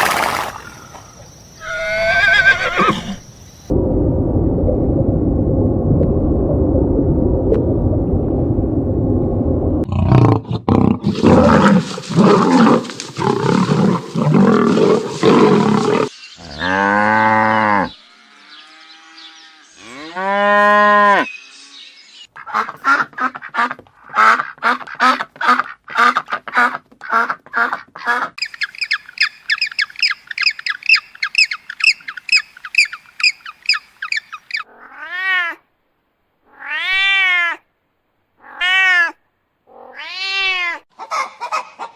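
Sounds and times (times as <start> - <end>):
animal calls: 0.6 - 3.3, 11.0 - 18.0.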